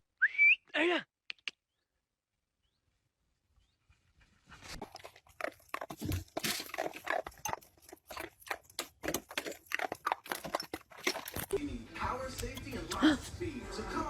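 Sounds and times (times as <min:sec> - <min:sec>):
animal chewing: 0:04.7 - 0:11.6, 0:12.2 - 0:13.0.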